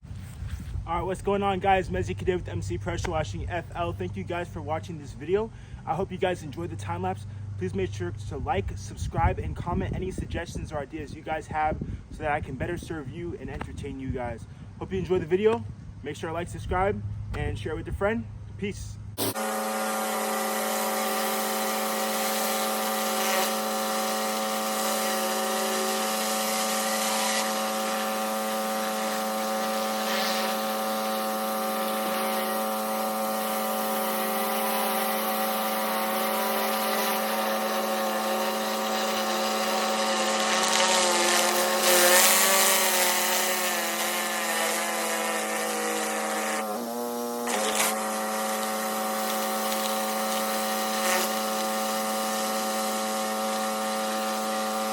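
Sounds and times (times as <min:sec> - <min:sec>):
pressure washer engine and pump drone: 0:00.0 - 0:54.9
high-pressure water spray hiss: 0:19.2 - 0:54.9.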